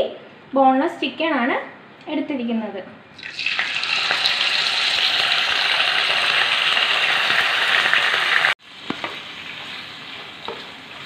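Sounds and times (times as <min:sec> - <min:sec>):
chicken sizzling in hot oil: 0:03.2 - 0:11.0.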